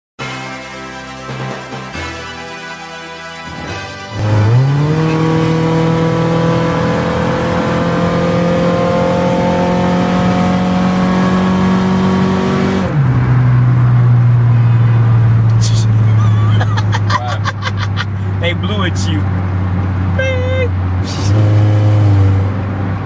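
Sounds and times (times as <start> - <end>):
car engine accelerating: 3.5 - 23.0.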